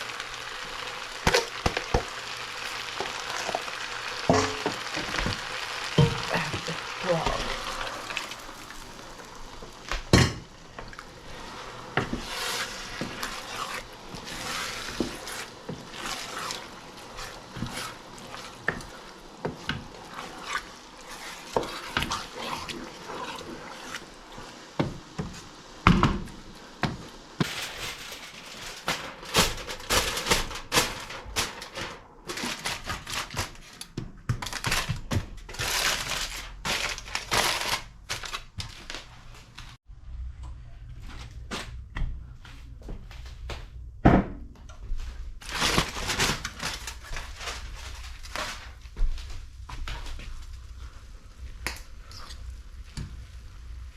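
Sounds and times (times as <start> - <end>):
pots and utensils clinking: 3.0 - 8.9.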